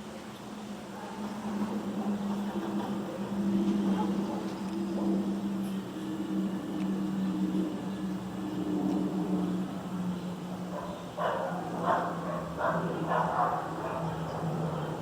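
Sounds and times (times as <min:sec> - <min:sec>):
low engine drone: 0:00.0 - 0:15.0
dog barking: 0:10.7 - 0:14.2.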